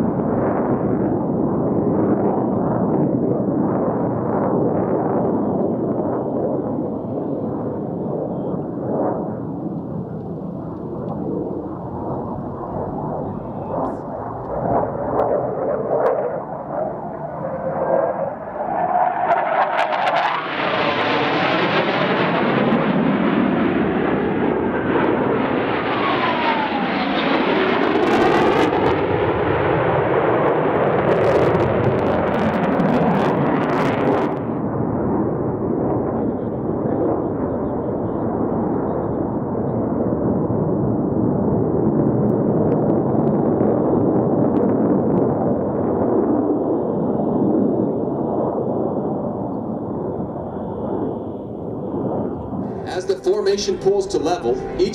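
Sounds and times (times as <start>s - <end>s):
sharp crackles of jet engines: 0.0s - 54.9s
jets flying past: 0.3s - 31.6s, 50.9s - 54.9s.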